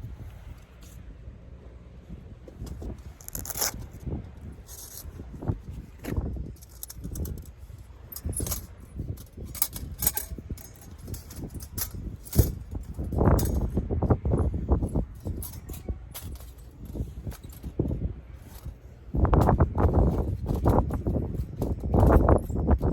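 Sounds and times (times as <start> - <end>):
wind rumble on microphone: 0.0 - 22.9
small hard objects clinking: 6.5 - 7.5.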